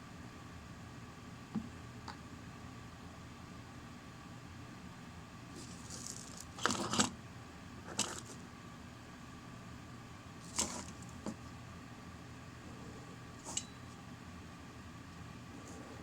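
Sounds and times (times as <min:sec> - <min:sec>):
faint room hum: 0:00.0 - 0:16.0
small hard objects clattering: 0:05.6 - 0:07.1, 0:07.9 - 0:08.4, 0:10.4 - 0:11.4.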